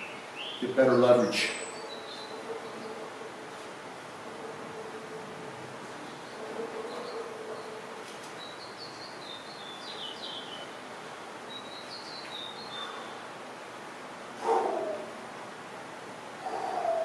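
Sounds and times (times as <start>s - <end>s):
songbird chirping: 0.0s - 3.4s, 5.9s - 13.3s
background hiss: 0.0s - 17.0s.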